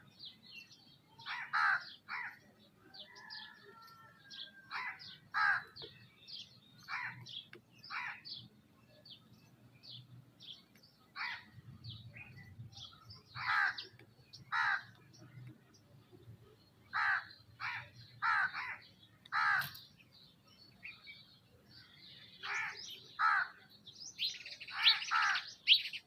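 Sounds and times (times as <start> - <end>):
small birds chirping: 0.0 - 26.0
loud harsh bird calls: 1.1 - 8.6, 11.0 - 15.2, 16.6 - 21.0, 21.7 - 26.0.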